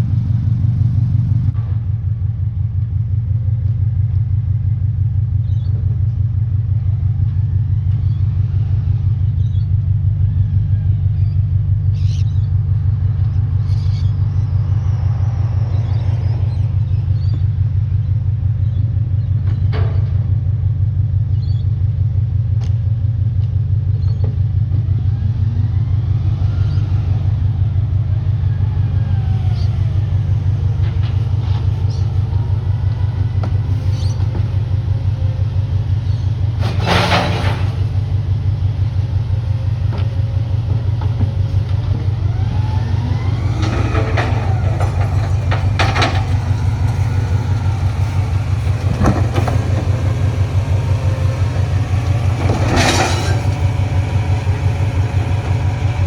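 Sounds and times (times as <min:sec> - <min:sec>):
garbage truck diesel engine rumble: 0:00.0 - 0:56.0
rising and falling whines: 0:13.4 - 0:17.5, 0:41.6 - 0:56.0
loud clatter: 0:29.5 - 0:38.6, 0:39.7 - 0:56.0.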